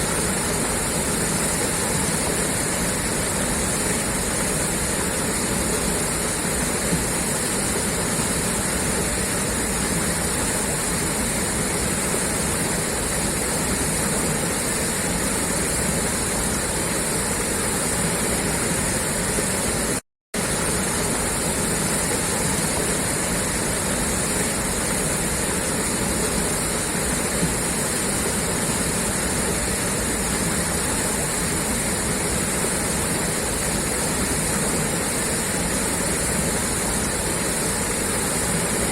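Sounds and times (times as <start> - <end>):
water gushing from a pipe: 0.0 - 38.9.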